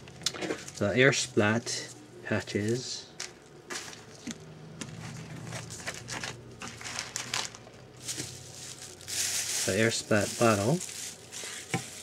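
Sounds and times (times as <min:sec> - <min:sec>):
plastic packaging crinkling: 0:04.9 - 0:12.0.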